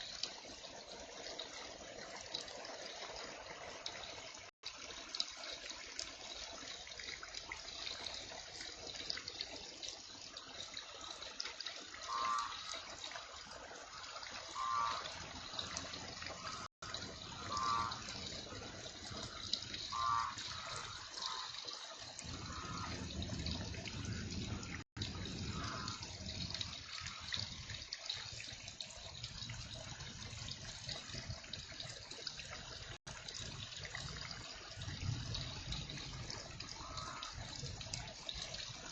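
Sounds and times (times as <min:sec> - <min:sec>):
trickling runoff: 0:00.0 - 0:38.9
heavy rain: 0:11.0 - 0:31.6, 0:32.8 - 0:38.9.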